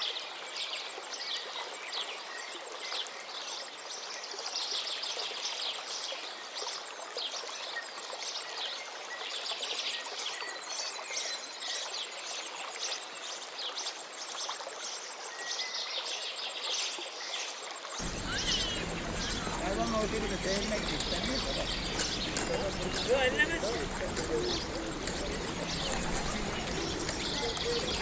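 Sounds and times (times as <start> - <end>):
songbirds chirping and singing: 18.0 - 28.0.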